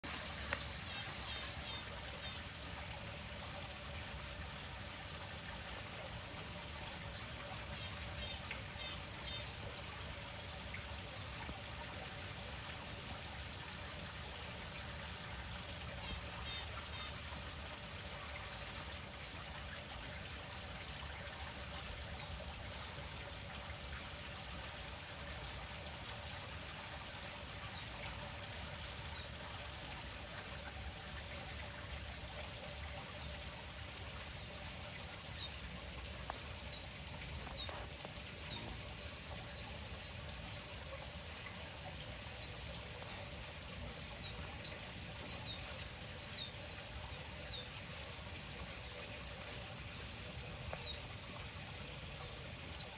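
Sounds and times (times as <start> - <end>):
steady background hiss: 0.0 - 52.9
small birds chirping: 27.6 - 52.9.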